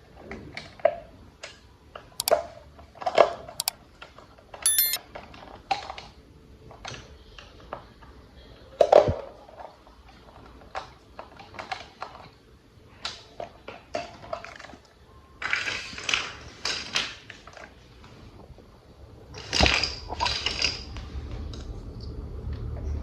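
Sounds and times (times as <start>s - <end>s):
plastic toy parts clicking: 4.7s - 5.0s.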